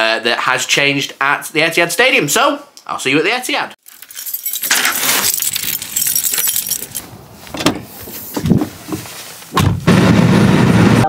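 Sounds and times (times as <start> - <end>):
keys jangling: 3.8 - 7.1.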